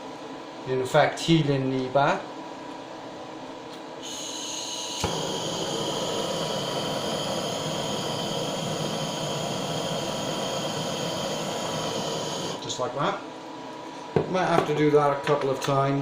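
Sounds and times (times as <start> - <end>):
blowtorch ignition click: 4.0 - 12.7
blowtorch flame hissing: 4.0 - 12.8
gas hissing: 4.0 - 12.9.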